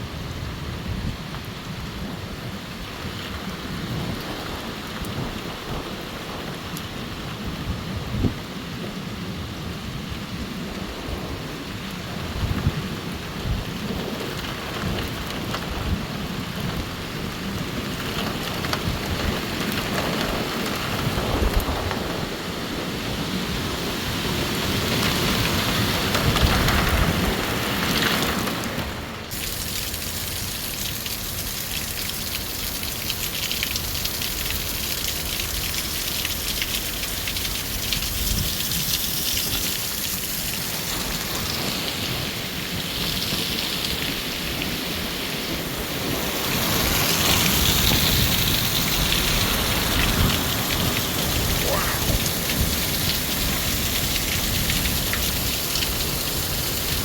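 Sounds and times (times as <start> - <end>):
wind buffeting microphone: 0.3 - 29.3, 46.9 - 57.0
steady rushing hiss: 47.5 - 57.0.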